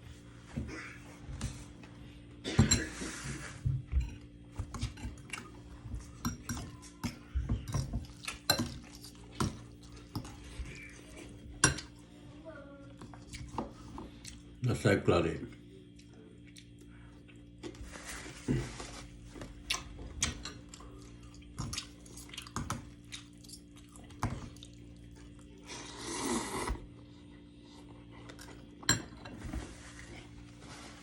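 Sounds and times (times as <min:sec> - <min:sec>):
steady low hum: 0:00.0 - 0:31.0
dishes and cutlery clinking: 0:02.5 - 0:10.8, 0:28.4 - 0:29.7.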